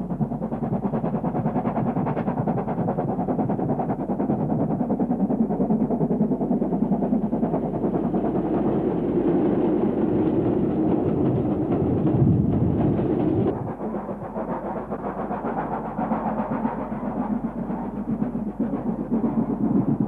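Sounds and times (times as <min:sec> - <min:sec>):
train running: 0:00.0 - 0:20.0.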